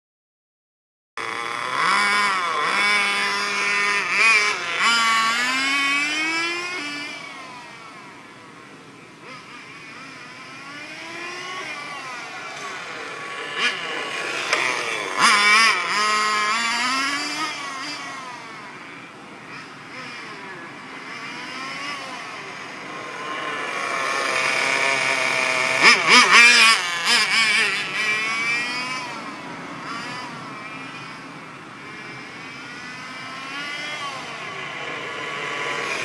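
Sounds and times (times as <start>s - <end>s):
rc car engine revving: 1.2s - 36.0s.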